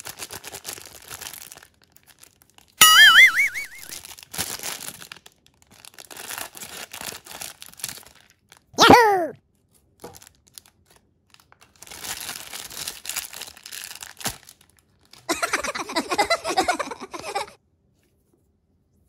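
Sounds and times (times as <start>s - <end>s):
plastic cling wrap crinkling: 0.0s - 2.8s, 4.0s - 8.7s, 9.9s - 15.3s.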